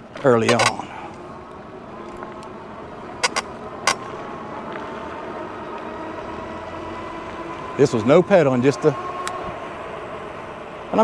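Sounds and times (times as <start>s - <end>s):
electric bike motor hum: 0.0s - 11.0s
tyre and road noise: 0.0s - 11.0s
sharp clicks: 0.5s - 0.8s, 3.2s - 4.0s.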